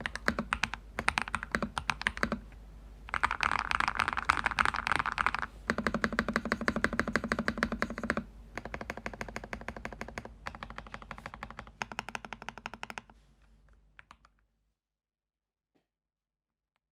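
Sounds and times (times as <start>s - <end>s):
fast typing on mechanical keyboard: 0.0s - 2.4s, 3.1s - 13.1s.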